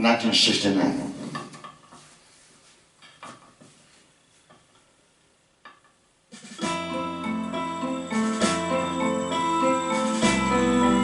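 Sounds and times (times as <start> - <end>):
backing track with keyboard and guitar: 6.4 - 11.0.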